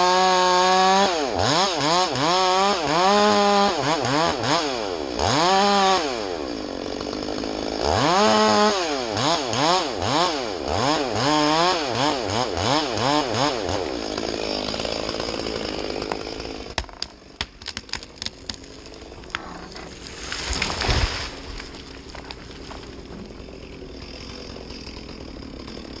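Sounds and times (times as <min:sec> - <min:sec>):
chainsaw cutting into tree: 0:00.0 - 0:26.0
wood cracking and snapping: 0:13.7 - 0:26.0.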